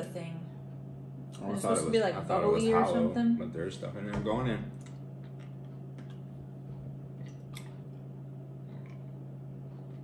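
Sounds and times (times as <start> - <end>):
low hum: 4.6 - 10.0.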